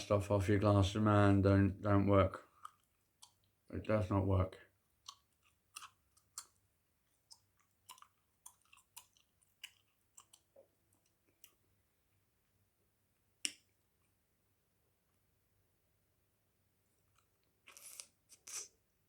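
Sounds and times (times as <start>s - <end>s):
gum chewing wet clicks: 2.4s - 3.7s, 4.9s - 11.6s.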